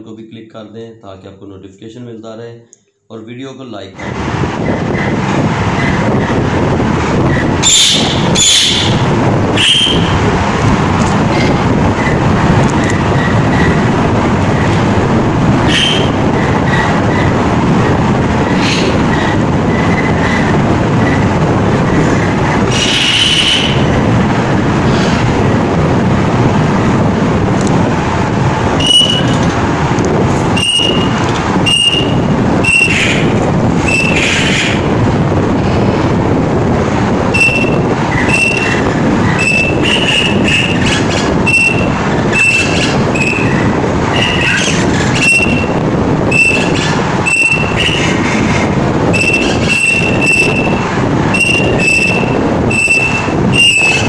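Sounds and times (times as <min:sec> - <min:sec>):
loud steady rushing noise: 0:03.7 - 0:54.0
caged birds chirping: 0:07.6 - 0:10.2, 0:22.2 - 0:24.0, 0:30.6 - 0:34.9, 0:37.4 - 0:48.6, 0:49.2 - 0:54.0.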